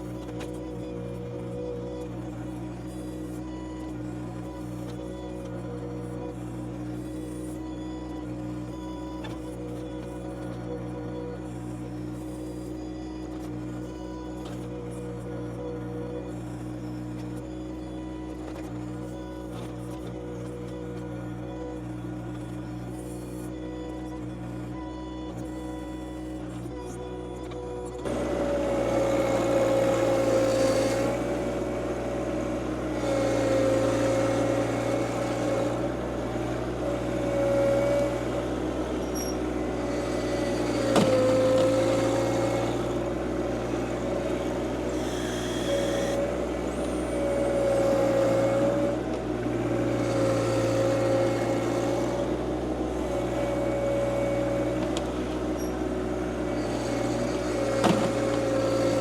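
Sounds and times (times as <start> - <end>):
tractor diesel engine under load: 27.6 - 59.0.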